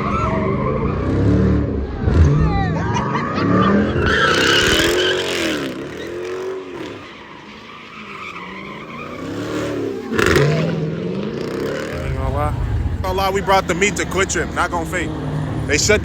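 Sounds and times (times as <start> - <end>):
car engine revving: 0.0 - 16.0
tyres squealing: 3.0 - 12.3.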